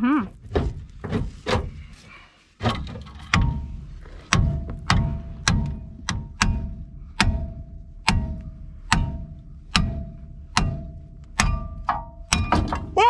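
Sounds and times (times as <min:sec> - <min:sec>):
hammer striking metal: 0:03.3 - 0:13.0.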